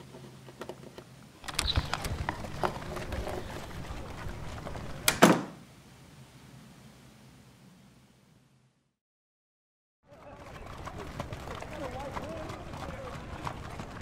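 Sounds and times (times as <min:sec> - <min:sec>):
rustling and small clicks: 0:00.1 - 0:05.4
door banging shut: 0:05.0 - 0:05.6.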